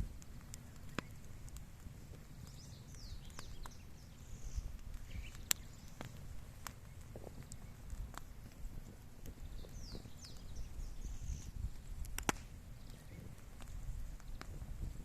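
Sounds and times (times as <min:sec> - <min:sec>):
bonfire crackling and popping: 0:00.0 - 0:15.0
faint bird chirps: 0:02.4 - 0:06.2, 0:09.4 - 0:11.7.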